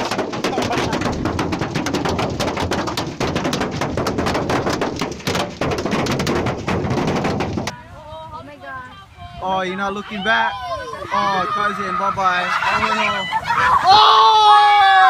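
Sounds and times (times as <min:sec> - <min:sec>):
hailstones clattering: 0:00.0 - 0:07.8.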